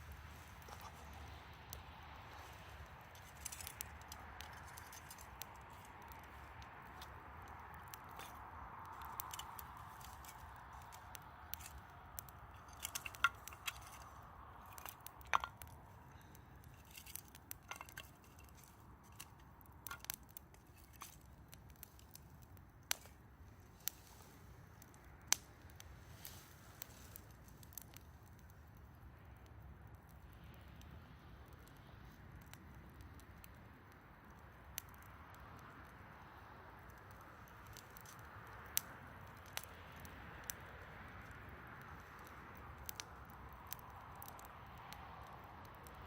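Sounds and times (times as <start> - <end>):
soft hiss: 0.0 - 12.6, 20.6 - 33.1
wood fire crackling: 0.0 - 46.0.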